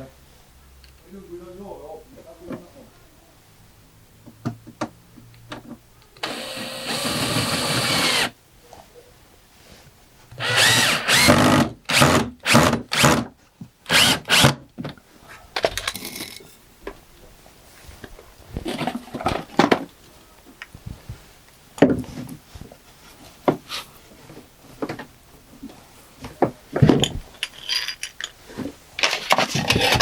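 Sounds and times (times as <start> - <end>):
drill clicks: 6.2 - 8.3, 10.4 - 13.2, 13.9 - 14.6
power drill driving screws: 6.2 - 8.4, 10.4 - 13.2, 13.9 - 14.6.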